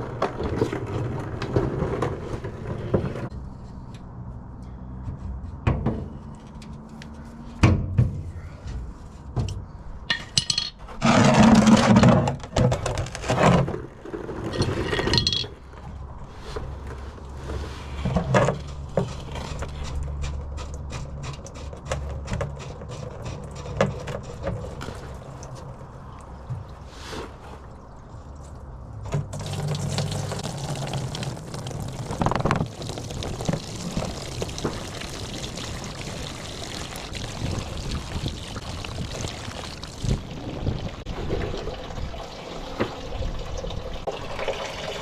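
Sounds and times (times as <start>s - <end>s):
fuel splashing into bucket: 28.7s - 45.0s.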